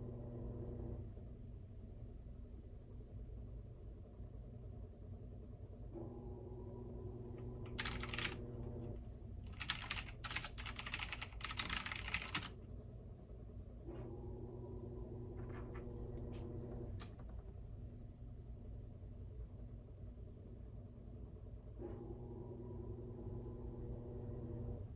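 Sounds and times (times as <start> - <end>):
washing machine motor whine: 0.0 - 1.5, 5.9 - 12.5, 13.8 - 17.6, 21.7 - 24.9
washing machine humming: 0.0 - 24.9
typing on computer keyboard: 7.7 - 8.4, 9.5 - 12.5.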